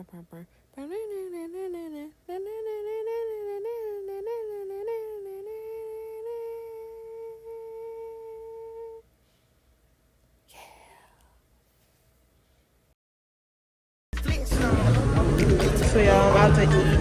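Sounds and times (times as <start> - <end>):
woman humming: 0.0 - 9.1, 10.5 - 11.4.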